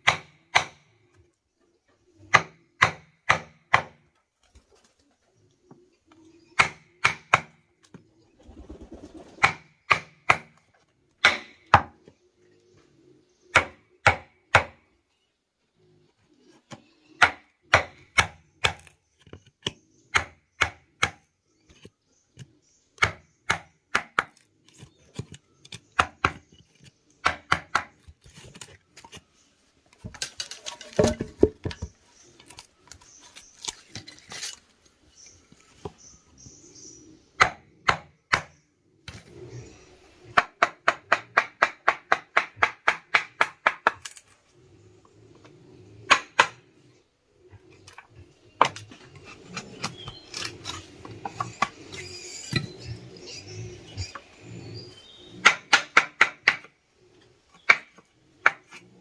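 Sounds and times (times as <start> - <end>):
hand tool striking wood: 0.0 - 0.8, 2.3 - 4.0, 11.2 - 11.9, 30.0 - 31.9, 55.4 - 56.7.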